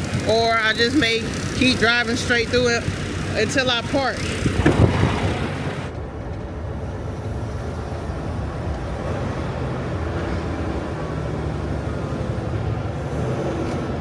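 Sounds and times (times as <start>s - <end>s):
truck diesel engine running: 0.0s - 5.9s.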